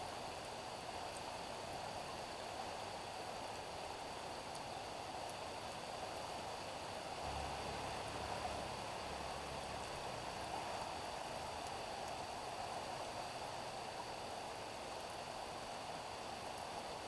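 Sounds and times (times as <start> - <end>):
steady rain on a street: 0.0 - 17.0.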